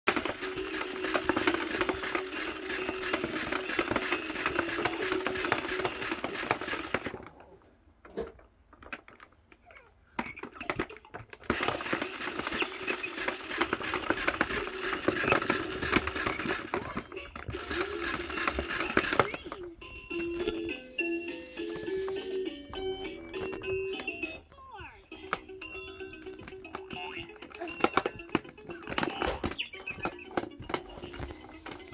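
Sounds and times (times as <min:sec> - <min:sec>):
toy motor hum: 0:00.1 - 0:07.3, 0:10.2 - 0:31.9
fast clattering clicks: 0:00.1 - 0:07.4, 0:10.2 - 0:19.7, 0:25.1 - 0:31.9.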